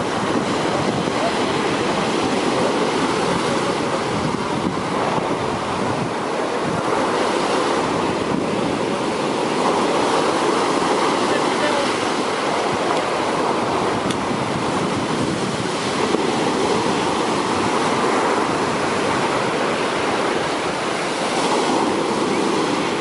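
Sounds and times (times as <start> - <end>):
sea waves breaking on a beach: 0.0 - 23.0.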